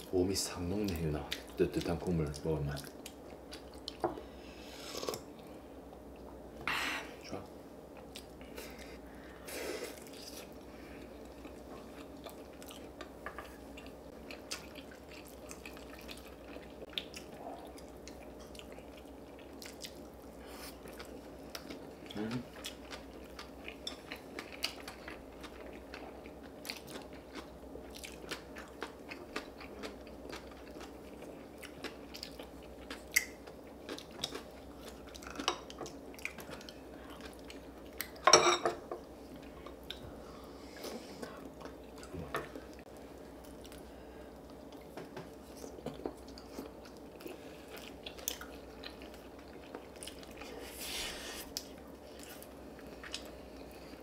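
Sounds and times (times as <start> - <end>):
chewing and crunching: 9.9 - 38.2, 40.7 - 50.6, 51.4 - 54.0.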